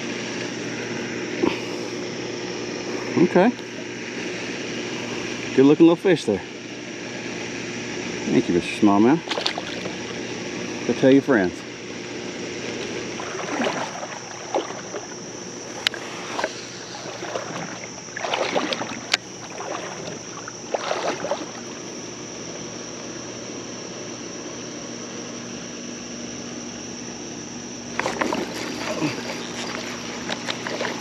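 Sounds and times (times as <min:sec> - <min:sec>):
water sloshing and splashing: 0:09.2 - 0:10.8, 0:12.4 - 0:22.2, 0:27.9 - 0:31.0
creek water rushing: 0:12.6 - 0:21.9, 0:27.9 - 0:31.0.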